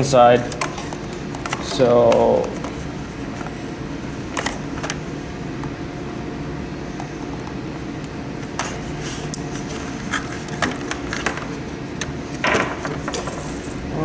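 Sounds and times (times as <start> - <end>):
hands handling plastic parts: 0.0 - 5.8, 8.4 - 13.8
low background hum: 0.0 - 14.0.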